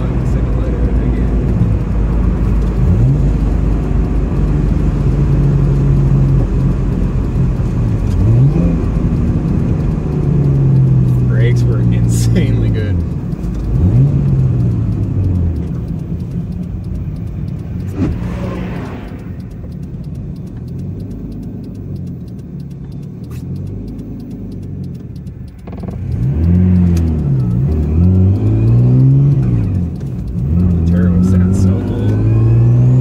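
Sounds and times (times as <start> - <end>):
car engine revving from inside: 0.0 - 15.9, 17.5 - 19.7, 25.6 - 33.0.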